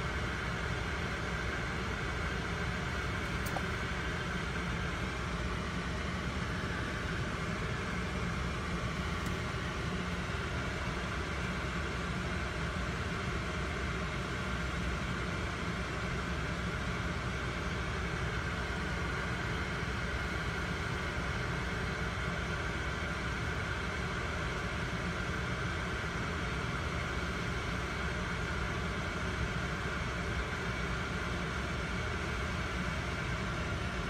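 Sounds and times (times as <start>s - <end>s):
car engine idling: 0.0s - 34.0s
cabin hum and hiss: 0.1s - 11.8s.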